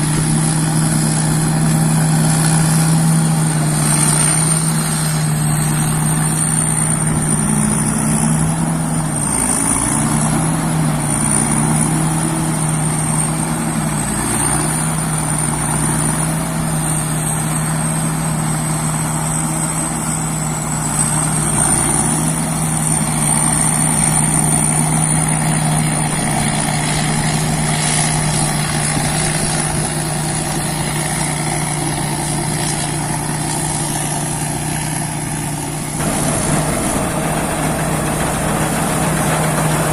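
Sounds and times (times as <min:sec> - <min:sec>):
combine harvester engine humming: 0:00.0 - 0:39.9
high wavering whine: 0:35.8 - 0:39.9.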